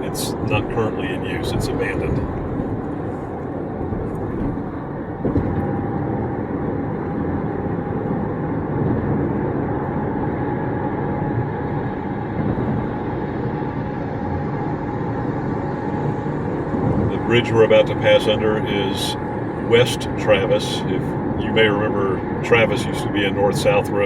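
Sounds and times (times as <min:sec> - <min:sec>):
car road noise at highway speed: 0:00.0 - 0:24.0.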